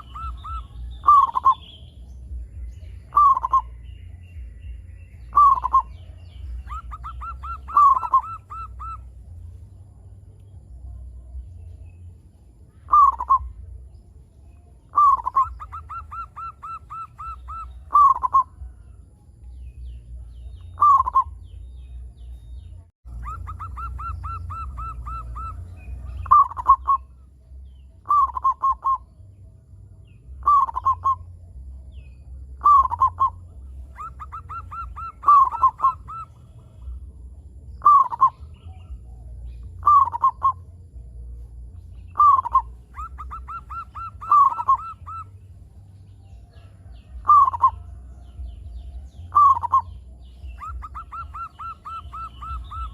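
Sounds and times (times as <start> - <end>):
dove cooing: 0.0 - 1.8, 3.0 - 3.8, 5.3 - 9.4, 12.9 - 13.6, 14.9 - 18.7, 20.7 - 21.4, 23.1 - 27.2, 28.0 - 29.1, 30.4 - 31.3, 32.6 - 37.1, 37.8 - 40.7, 42.0 - 45.5, 46.4 - 52.9
low steady hum: 0.0 - 52.9.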